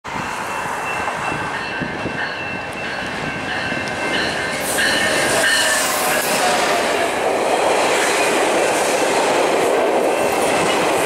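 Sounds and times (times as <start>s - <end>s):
level-crossing warning bell: 0.1s - 7.3s
diesel locomotive engine: 0.1s - 11.0s
train wheel noise: 0.1s - 11.0s.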